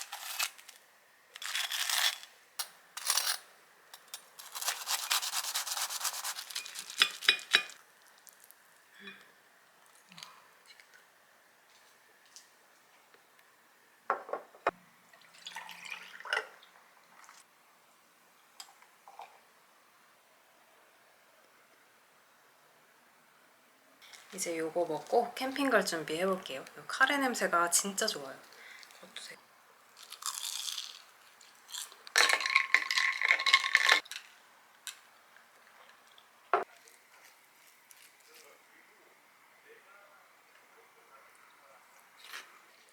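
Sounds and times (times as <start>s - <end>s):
dishes and utensils clinking: 6.6s - 7.8s.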